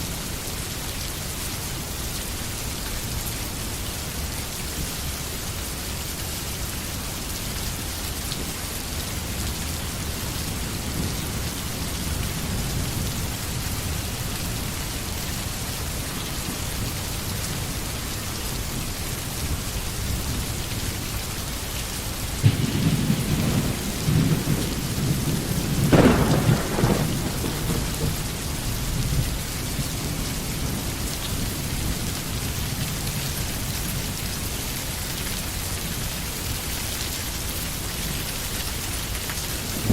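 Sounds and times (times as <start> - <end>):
steady rain: 0.0 - 39.9
thunder rumbling and clapping: 22.4 - 32.0.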